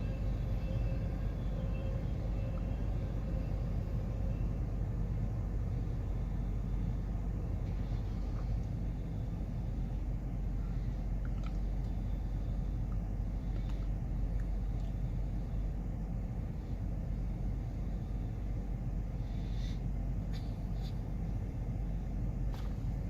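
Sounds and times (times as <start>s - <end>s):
freight train cars rumbling: 0.0s - 23.0s.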